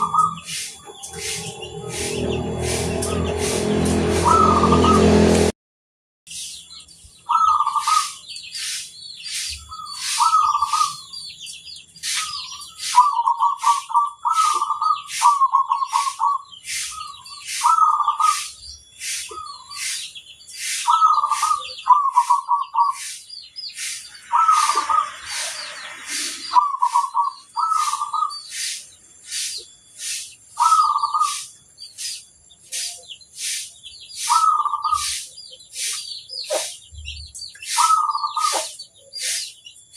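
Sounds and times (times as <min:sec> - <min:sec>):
dove cooing: 0:00.0 - 0:01.5, 0:09.7 - 0:11.0, 0:12.9 - 0:16.4, 0:24.3 - 0:25.1, 0:30.6 - 0:31.4, 0:37.8 - 0:38.8
high quick chirps: 0:00.0 - 0:05.0, 0:07.6 - 0:39.9.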